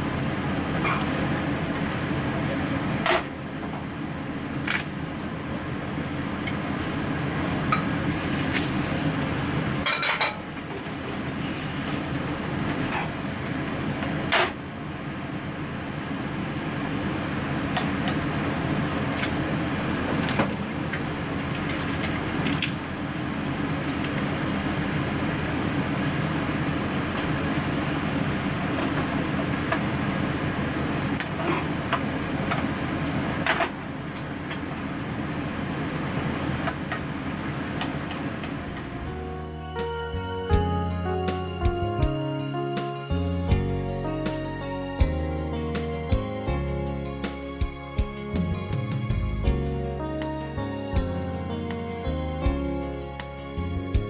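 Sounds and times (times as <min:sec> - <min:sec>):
steady low hum: 0:00.0 - 0:42.3.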